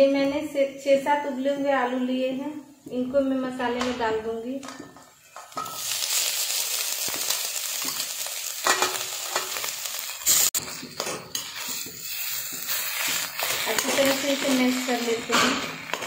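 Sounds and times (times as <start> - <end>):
oil and spices sizzling: 1.5 - 16.0
spatula knocking and scraping a pan: 7.1 - 9.7, 10.6 - 16.0.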